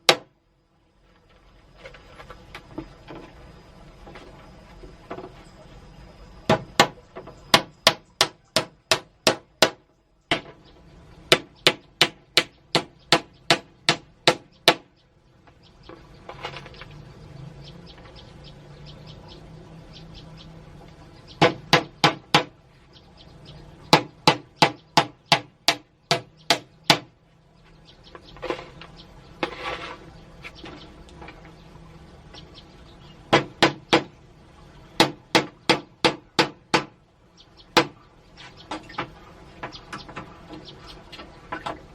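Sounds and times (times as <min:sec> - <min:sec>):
hammering strikes: 0:06.5 - 0:10.6, 0:11.3 - 0:14.9, 0:21.4 - 0:22.6, 0:23.9 - 0:27.2, 0:33.3 - 0:34.2, 0:35.0 - 0:37.0, 0:37.8 - 0:38.0.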